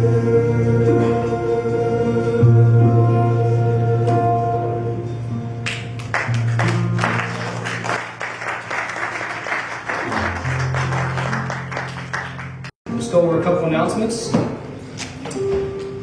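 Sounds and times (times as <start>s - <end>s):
congregation applauding: 5.6s - 12.8s.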